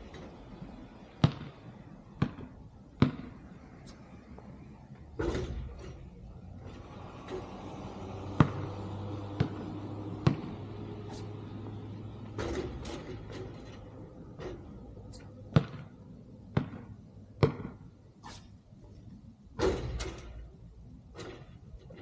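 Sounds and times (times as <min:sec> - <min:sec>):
basketball bouncing on hard court: 0:01.1 - 0:03.4, 0:08.4 - 0:10.6, 0:15.5 - 0:17.9.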